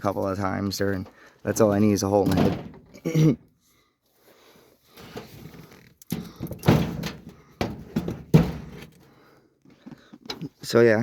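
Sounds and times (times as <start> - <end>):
heavy thunks and knocks on wood and steel: 2.2 - 3.0, 6.1 - 9.0.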